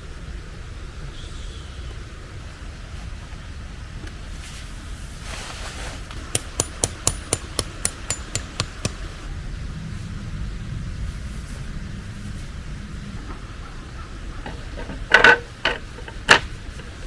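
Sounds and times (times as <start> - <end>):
sharp metallic strikes ringing: 6.3 - 9.0.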